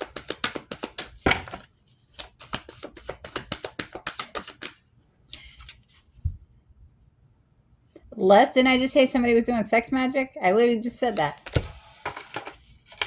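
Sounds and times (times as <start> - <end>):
cards being shuffled: 0.0 - 6.2, 11.1 - 13.0
cards rustling: 0.0 - 6.2, 11.0 - 13.0.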